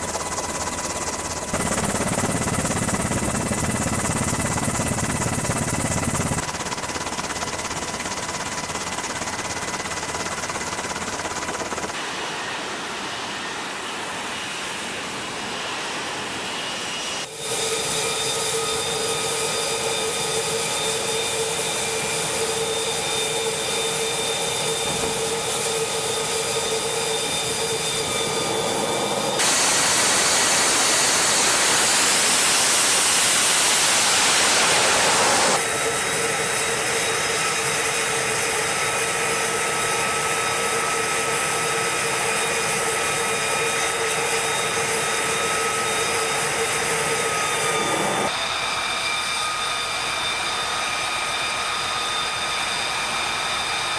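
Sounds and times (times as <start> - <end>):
jet engine turbine whine: 0.0 - 53.9
loud rushing hiss: 29.4 - 35.6.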